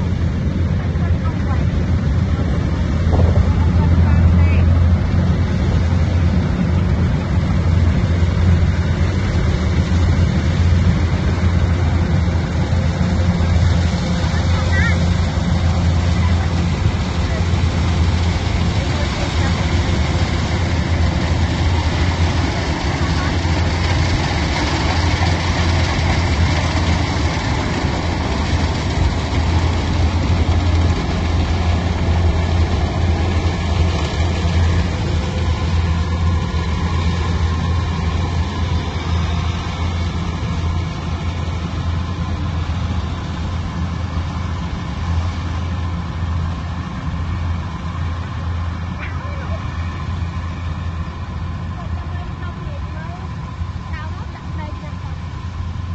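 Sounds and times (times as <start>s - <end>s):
heavy machine engine running: 0.0s - 55.9s.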